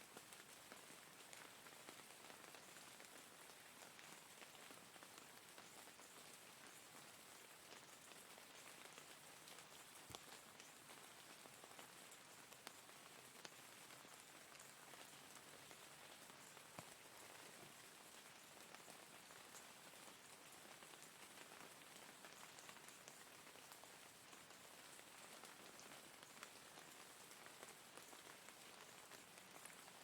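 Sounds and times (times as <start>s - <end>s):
faint rain falling: 0.0s - 30.0s.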